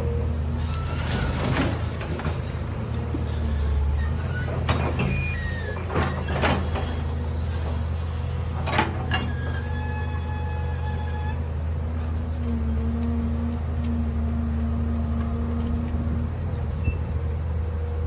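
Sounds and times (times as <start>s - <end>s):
excavator diesel engine running: 0.0s - 18.0s
high squeals: 3.9s - 7.0s.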